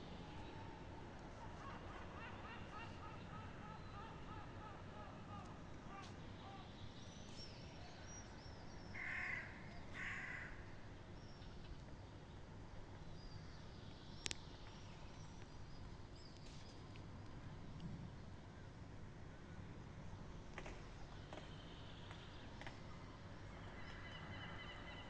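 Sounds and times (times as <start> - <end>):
crow cawing: 9.0 - 10.6
small birds chirping: 13.0 - 17.8.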